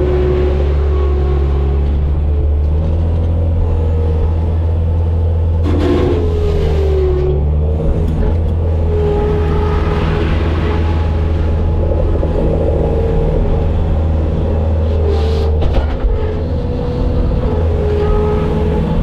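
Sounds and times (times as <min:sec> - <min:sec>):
diesel engine running: 0:00.0 - 0:19.0
wavering whine: 0:08.7 - 0:15.6.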